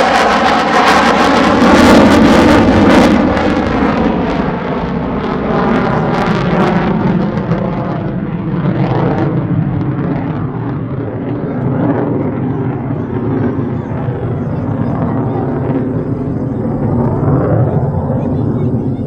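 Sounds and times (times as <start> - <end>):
fighter jet engine roar: 0.0 - 19.0.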